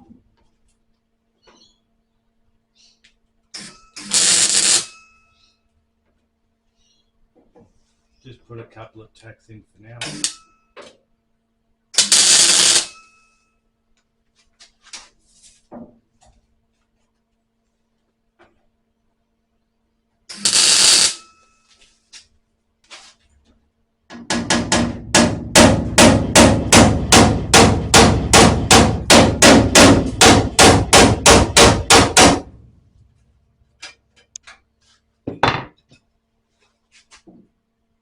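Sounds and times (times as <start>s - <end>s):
hammer striking sheet steel: 24.2s - 32.6s.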